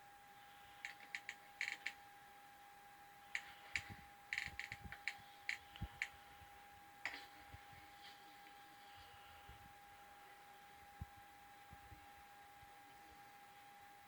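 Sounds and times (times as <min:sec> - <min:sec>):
faint steady hum: 0:00.0 - 0:14.0
sharp clicks and ticks: 0:00.8 - 0:02.0, 0:03.3 - 0:06.2.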